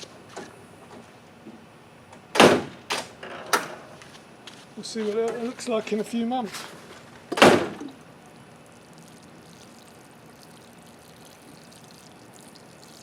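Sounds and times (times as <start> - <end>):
water trickling into pot: 8.0 - 13.0.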